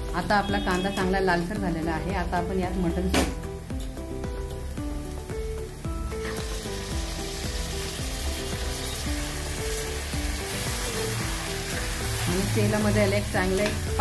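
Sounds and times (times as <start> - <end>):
background music with bass: 0.0 - 14.0
hot oil sizzling: 3.4 - 14.0.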